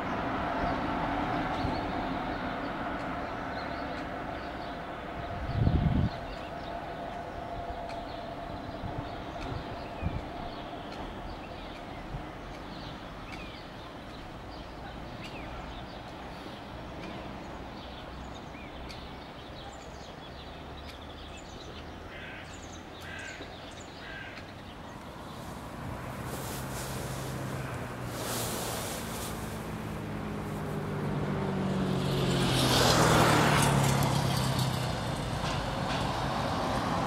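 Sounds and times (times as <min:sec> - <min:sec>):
wind on microphone: 0:05.2 - 0:06.6, 0:07.4 - 0:10.7
small birds chirping: 0:09.1 - 0:31.2
crow cawing: 0:22.1 - 0:23.4, 0:24.0 - 0:24.4.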